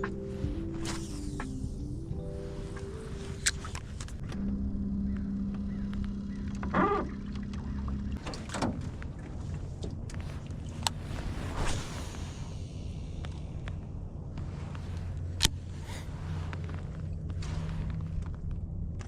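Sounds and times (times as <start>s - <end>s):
steady hum: 0.0s - 8.2s
boat low rumble: 0.0s - 19.0s.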